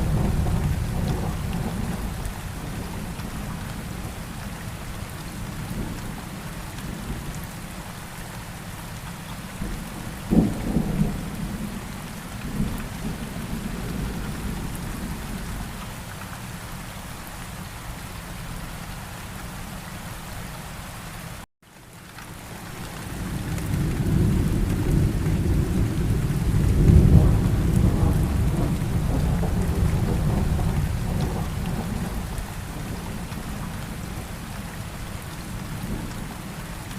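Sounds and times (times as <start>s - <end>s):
rolling thunder: 0.0s - 4.2s, 9.6s - 15.7s, 23.1s - 34.3s
steady rain: 0.0s - 36.9s
sharp thunderclap: 23.6s - 32.3s.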